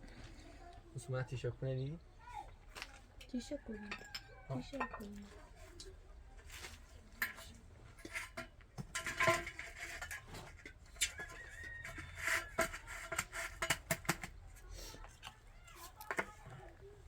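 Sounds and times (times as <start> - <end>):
hard objects clinking and knocking: 7.2 - 14.5.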